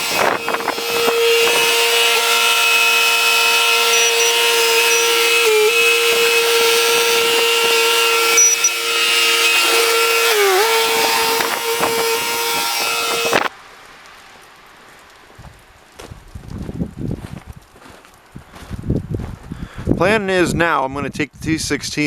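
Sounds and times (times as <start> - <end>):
skid-steer engine at high revs: 0.0 - 13.5.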